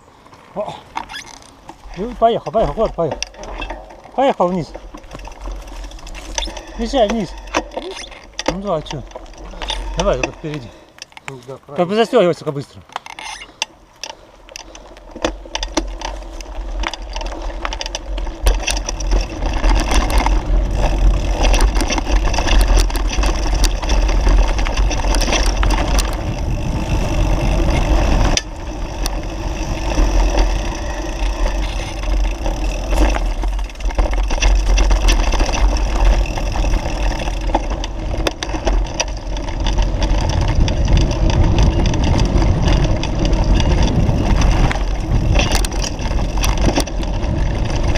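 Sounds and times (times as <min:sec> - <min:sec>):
bicycle rattling and knocking: 0:00.7 - 0:47.9
wind buffeting microphone: 0:18.2 - 0:47.9.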